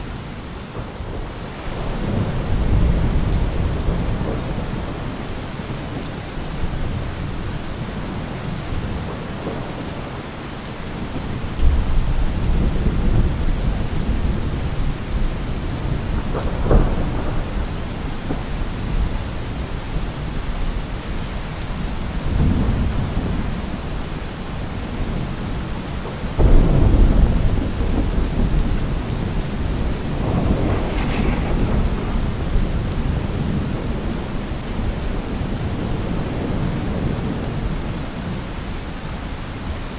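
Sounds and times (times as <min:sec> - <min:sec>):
heavy rain: 0:00.0 - 0:39.9
rolling thunder: 0:00.1 - 0:10.2, 0:11.0 - 0:20.8, 0:22.0 - 0:38.4.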